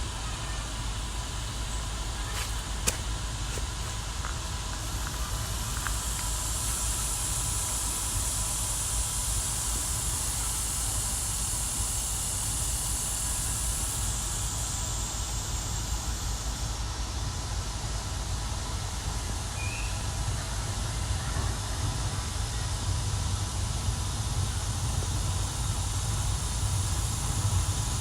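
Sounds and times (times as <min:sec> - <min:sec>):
high hiss: 0:00.0 - 0:16.7.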